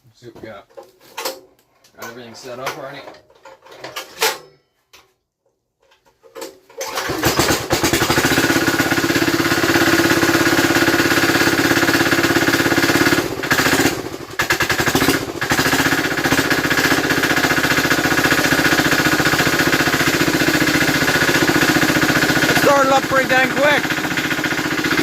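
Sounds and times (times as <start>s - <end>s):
diesel engine cranking and running: 6.8s - 25.0s.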